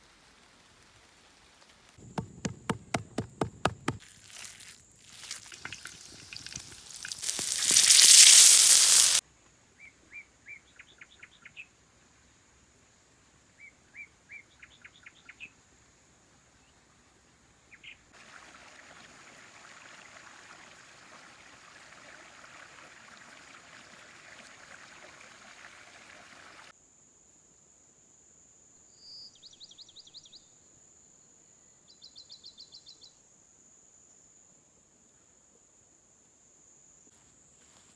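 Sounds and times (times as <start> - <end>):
steady hiss: 0.0 - 9.2.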